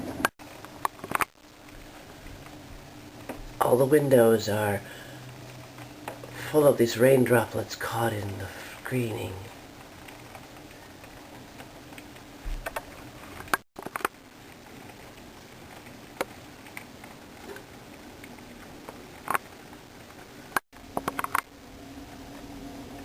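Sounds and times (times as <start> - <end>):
heavy rain hissing: 1.8 - 9.7.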